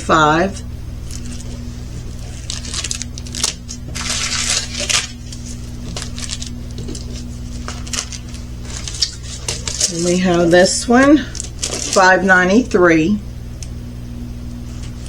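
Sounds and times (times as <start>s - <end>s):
steady low hum: 0.0s - 15.0s
plastic packaging crinkling: 1.0s - 12.8s.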